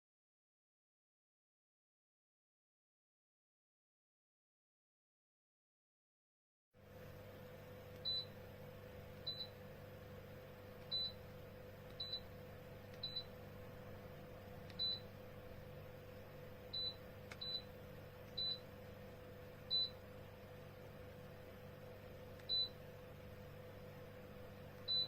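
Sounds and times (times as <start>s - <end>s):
steady hum: 6.8s - 25.0s.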